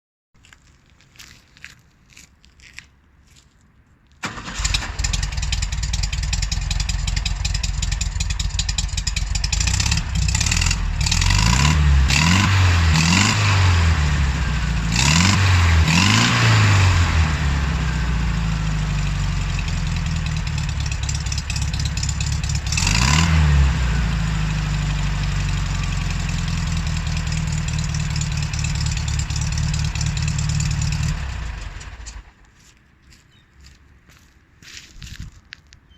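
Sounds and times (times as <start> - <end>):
car engine starting and revving: 4.2 - 32.3.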